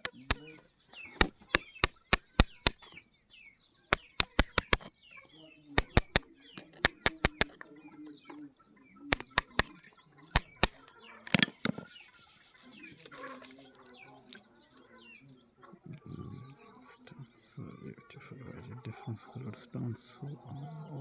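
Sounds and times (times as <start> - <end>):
birds chirping: 0.0 - 21.0
sharp clicks or knocks: 3.9 - 4.9, 5.8 - 7.6, 9.1 - 9.7, 10.3 - 11.8.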